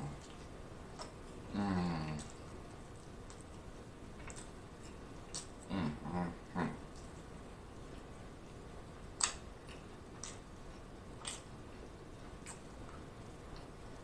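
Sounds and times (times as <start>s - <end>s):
person chewing with wet mouth clicks: 0.1s - 1.4s, 2.0s - 5.7s, 9.2s - 11.6s, 12.3s - 13.8s.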